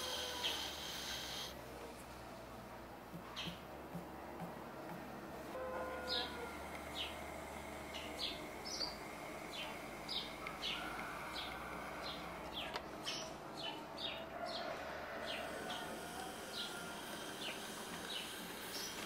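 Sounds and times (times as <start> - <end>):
small birds chirping: 0.0 - 1.6, 3.3 - 3.7, 6.0 - 19.0
steady low hiss: 0.0 - 14.3, 14.9 - 19.0.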